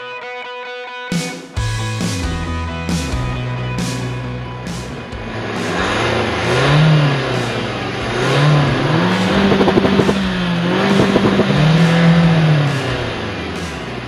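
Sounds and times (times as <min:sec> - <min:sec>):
car engine revving: 0:02.9 - 0:14.0
exhaust crackle: 0:03.9 - 0:14.0.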